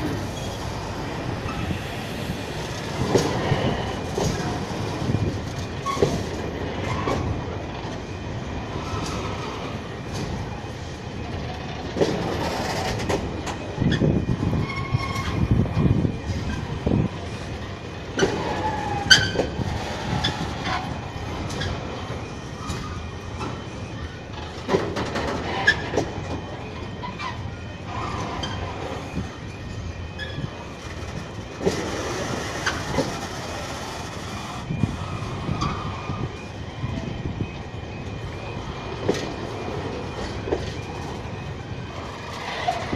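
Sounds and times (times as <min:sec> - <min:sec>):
train rumble: 0:00.0 - 0:42.9
wheel squeals: 0:00.0 - 0:42.9
wheels clicking over rail joints: 0:02.5 - 0:23.7, 0:30.1 - 0:37.1, 0:38.0 - 0:42.9.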